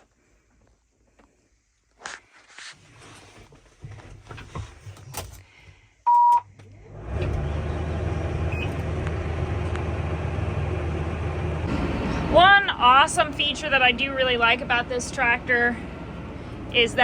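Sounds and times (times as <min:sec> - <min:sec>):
short electronic beep: 0:06.1 - 0:06.5
diesel tractor engine starting and idling: 0:06.5 - 0:17.0.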